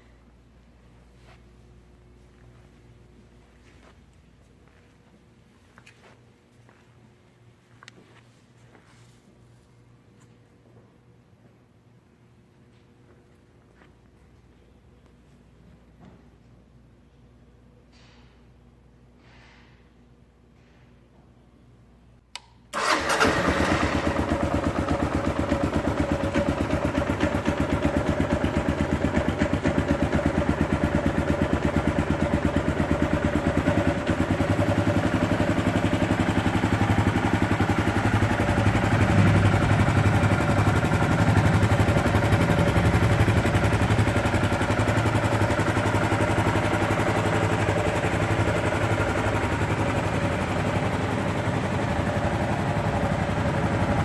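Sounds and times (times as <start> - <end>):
motorcycle engine starting and idling: 22.4 - 54.0.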